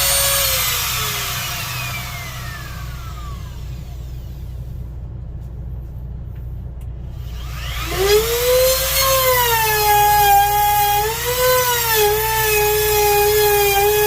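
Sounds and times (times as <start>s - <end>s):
power tool motor whining: 0.0s - 4.4s, 7.2s - 14.0s
low steady hum: 0.0s - 14.0s.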